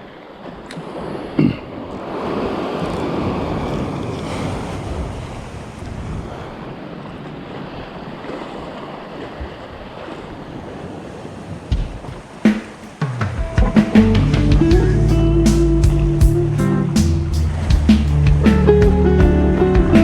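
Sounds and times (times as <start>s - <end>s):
surf washing over rocks: 0.0s - 20.0s
wind buffeting microphone: 2.0s - 12.5s, 13.4s - 20.0s.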